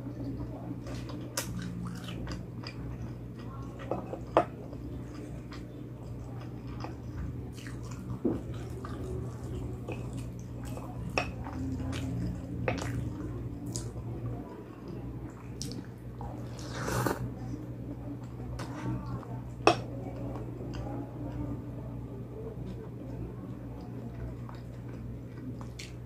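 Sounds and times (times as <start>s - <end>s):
steady low hum: 0.0s - 26.0s
chewing and biting food: 0.8s - 14.0s.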